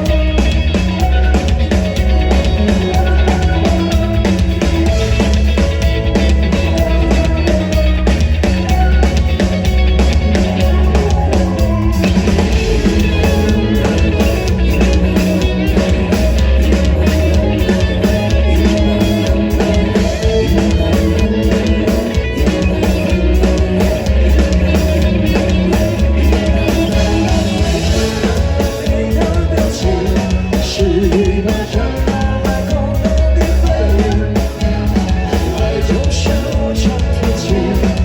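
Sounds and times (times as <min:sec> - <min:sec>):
driving drum kit: 0:00.0 - 0:38.0
live rock band playing: 0:00.0 - 0:38.0.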